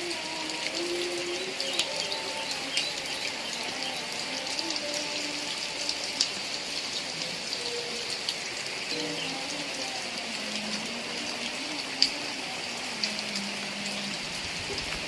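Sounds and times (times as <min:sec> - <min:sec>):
heavy rain hissing: 0:00.0 - 0:15.0
raindrops tapping: 0:00.0 - 0:15.0.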